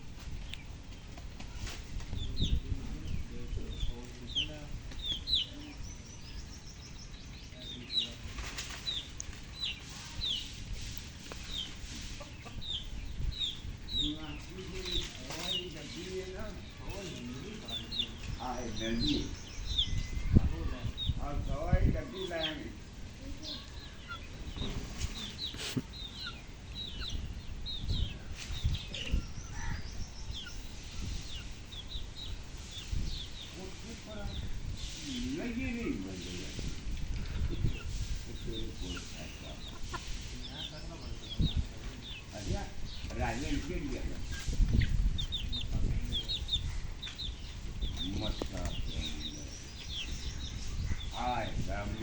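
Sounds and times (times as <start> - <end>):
rustling noise: 0.0 - 3.1, 8.1 - 21.0, 23.7 - 25.9, 27.8 - 29.4, 30.2 - 52.0
small bird chirping: 0.0 - 52.0.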